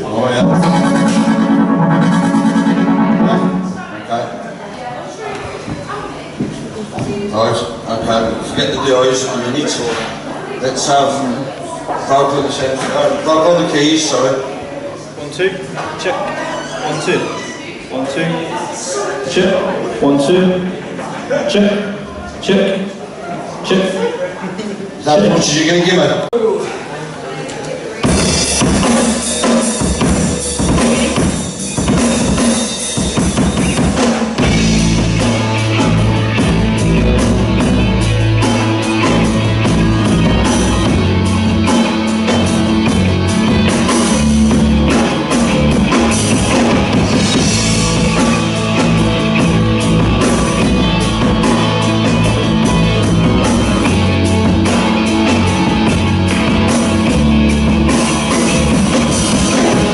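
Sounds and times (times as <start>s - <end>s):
bass line: 0.0s - 4.2s, 33.4s - 59.9s
guitar: 0.0s - 4.5s, 28.0s - 59.9s
drum kit: 0.4s - 3.8s, 28.0s - 59.9s.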